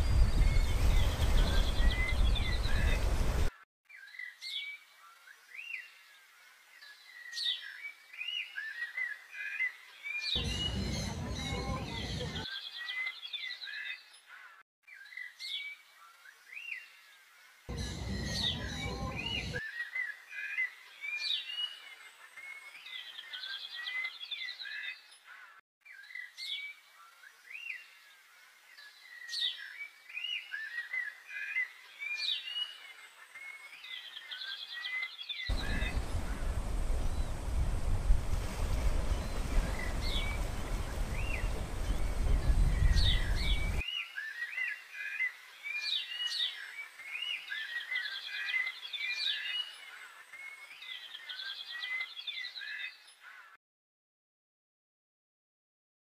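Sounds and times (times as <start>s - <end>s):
rushing noise with deep rumble: 0.0s - 3.5s, 10.4s - 12.4s, 35.5s - 43.8s
flock of birds chirping: 0.0s - 53.6s.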